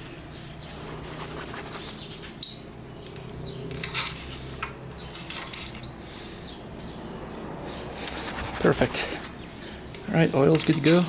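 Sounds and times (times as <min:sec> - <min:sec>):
metal parts clinking: 0:02.4 - 0:06.0, 0:10.5 - 0:11.0.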